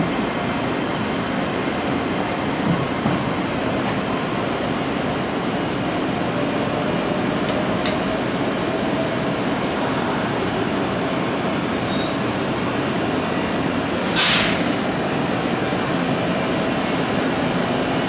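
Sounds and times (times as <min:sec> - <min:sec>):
train equipment running: 0:00.0 - 0:18.0
hissing air burst: 0:14.0 - 0:14.7.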